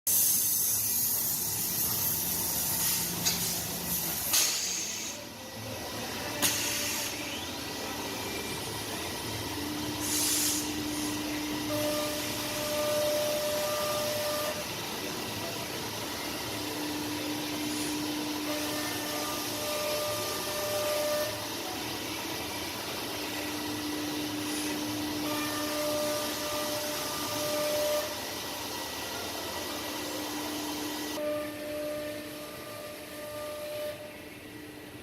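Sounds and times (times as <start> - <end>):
router hiss: 0.1 - 5.6, 6.2 - 31.2
humming tones: 5.3 - 15.1, 16.2 - 28.2, 30.1 - 34.5.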